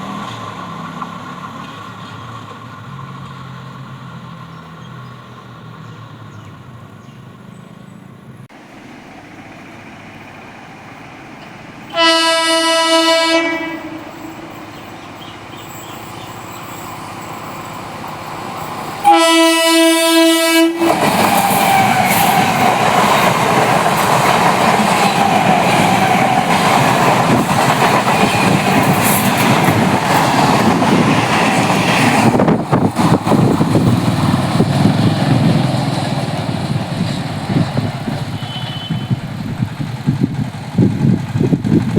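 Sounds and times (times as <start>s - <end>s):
train horn blasts: 11.9s - 14.7s, 19.0s - 22.4s, 38.2s - 39.3s
train wheels clattering over rails: 13.6s - 41.9s.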